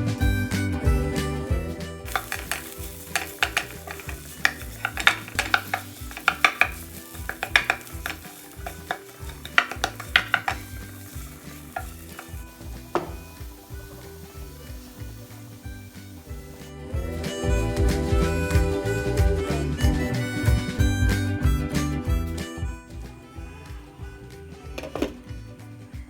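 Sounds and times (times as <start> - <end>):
metal spoon scraping frying pan: 2.1 - 16.4
food sizzling in oil: 2.1 - 17.5.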